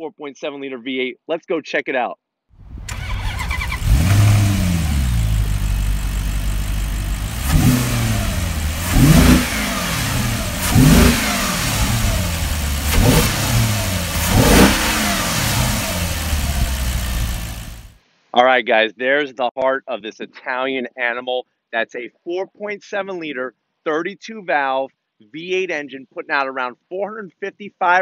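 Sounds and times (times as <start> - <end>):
car engine idling and revving: 2.6 - 18.0.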